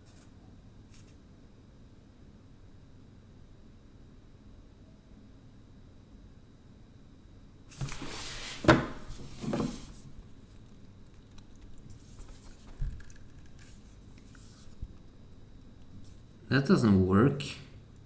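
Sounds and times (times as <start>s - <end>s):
handling rustling: 7.7s - 10.1s.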